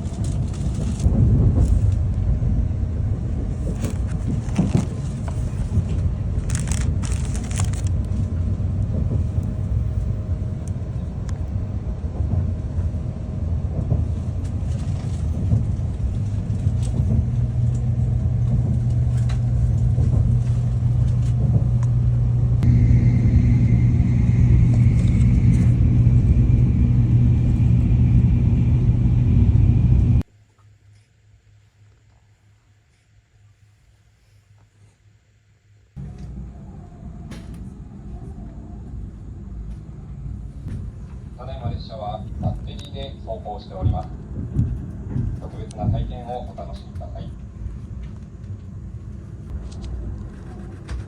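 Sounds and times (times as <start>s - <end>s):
train rumbling: 0.0s - 30.3s, 36.0s - 51.0s
low hum: 0.0s - 34.2s, 34.8s - 51.0s
high whine: 15.9s - 30.2s.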